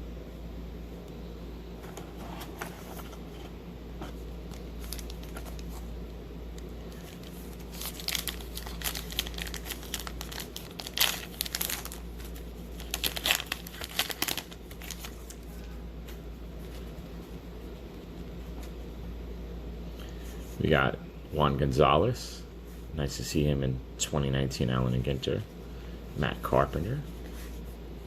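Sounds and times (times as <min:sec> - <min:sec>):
steady low hum: 0:00.0 - 0:28.0
wrapper crinkling and rustling: 0:04.5 - 0:05.9, 0:06.9 - 0:15.6.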